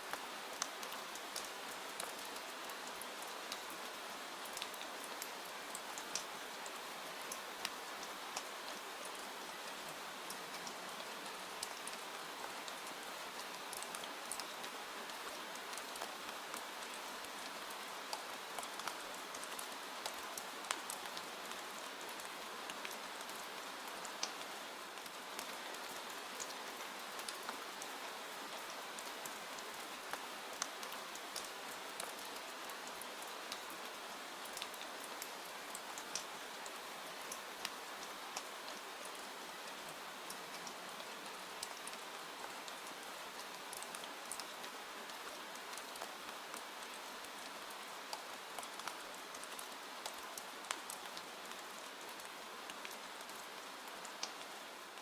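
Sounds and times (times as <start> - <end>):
raindrop ticks: 34.5 - 36.3, 48.1 - 51.6, 52.2 - 53.4, 54.1 - 54.4.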